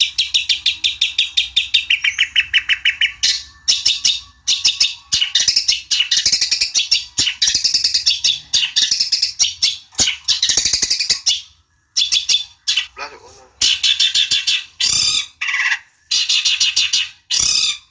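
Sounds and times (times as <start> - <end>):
bird harsh chattering song: 0.0 - 17.9.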